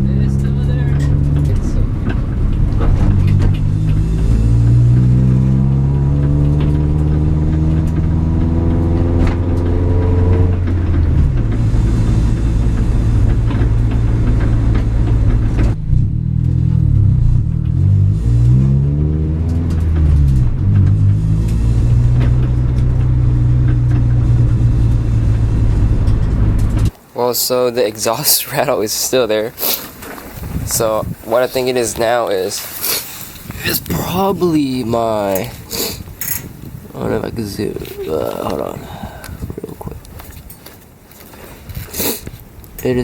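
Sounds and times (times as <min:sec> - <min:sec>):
car engine revving: 0:00.0 - 0:26.9
exhaust rattle: 0:00.0 - 0:43.0.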